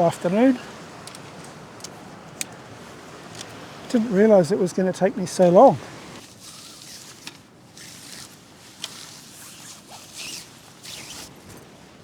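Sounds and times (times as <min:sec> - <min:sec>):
zipper pulled: 0:06.3 - 0:11.4.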